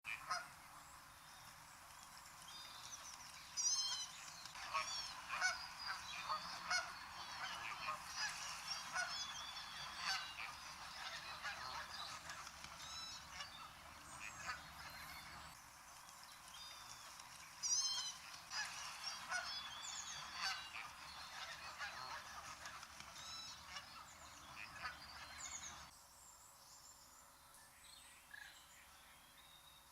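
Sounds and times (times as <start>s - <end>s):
geese honking: 3.9s - 15.6s, 18.0s - 25.9s.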